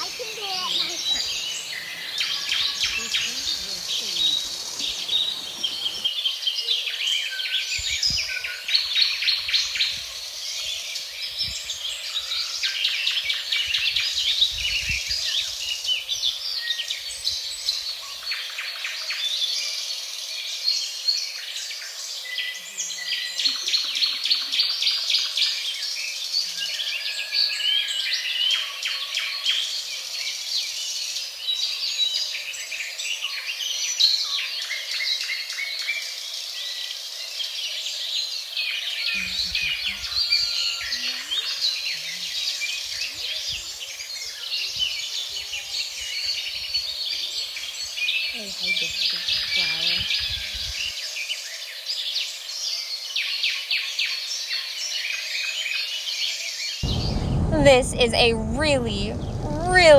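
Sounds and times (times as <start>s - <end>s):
faint insect hum: 0.0s - 6.1s
forest birds singing: 0.0s - 7.1s, 43.8s - 57.5s.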